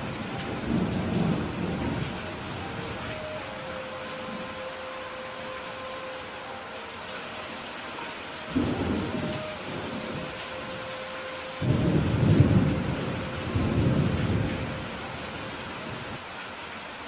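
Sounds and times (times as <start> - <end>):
thunder rumbling: 0.0 - 4.6, 8.5 - 16.2
rain hiss: 0.0 - 17.0.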